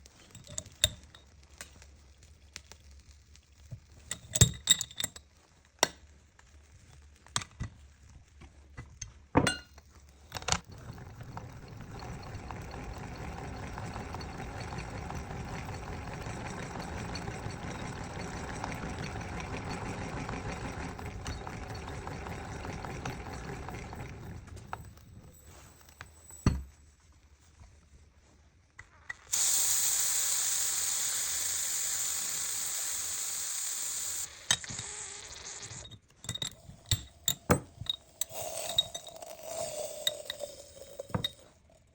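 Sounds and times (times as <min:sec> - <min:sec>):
popcorn machine whirring hum: 0:10.3 - 0:26.2, 0:29.3 - 0:35.8
sharp clinks and knocks: 0:35.8 - 0:41.5.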